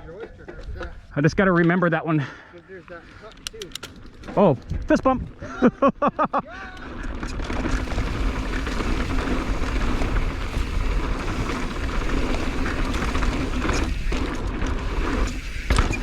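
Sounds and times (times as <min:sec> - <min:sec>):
bike tyres rolling over dirt and rock: 0:03.0 - 0:05.5, 0:06.4 - 0:16.0
bike rattling and clicking: 0:03.1 - 0:05.5, 0:06.5 - 0:16.0.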